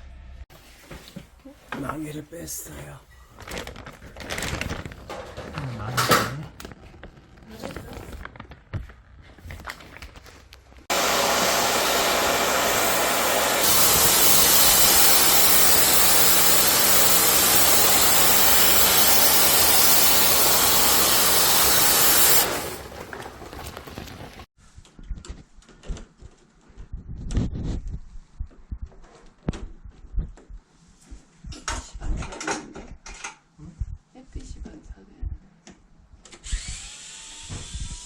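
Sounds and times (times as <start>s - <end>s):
cleaning machine rushing hiss: 10.9s - 23.5s.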